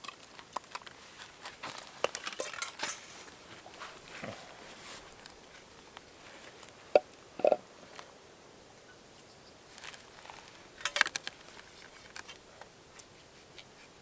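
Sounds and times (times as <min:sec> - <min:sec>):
dishes and cutlery clinking: 0:02.1 - 0:03.2.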